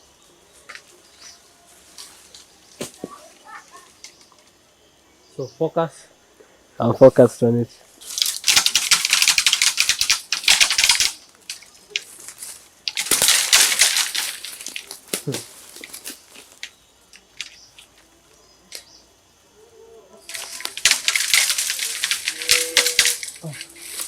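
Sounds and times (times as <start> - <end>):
crackling rustling noise: 7.9 - 18.1, 20.2 - 24.0.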